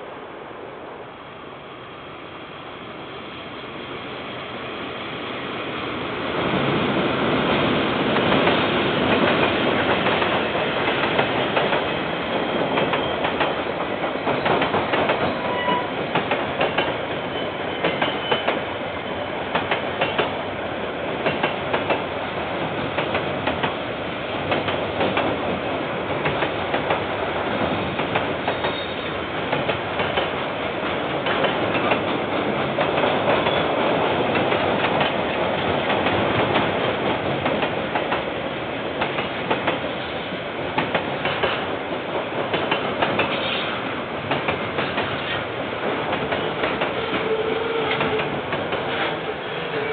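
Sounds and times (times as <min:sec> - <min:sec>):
train passing: 0:00.0 - 0:49.9
wheels clacking over rail joints: 0:12.6 - 0:18.7, 0:19.5 - 0:20.4, 0:21.2 - 0:23.8, 0:24.4 - 0:38.3, 0:40.8 - 0:49.9.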